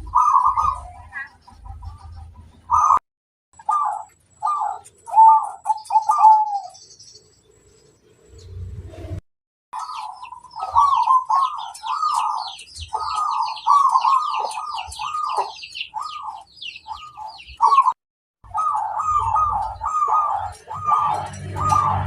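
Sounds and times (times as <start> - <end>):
dove cooing: 0.0 - 3.0, 3.6 - 6.9, 9.8 - 22.0
high twittering chirps: 3.6 - 8.7, 9.8 - 22.0.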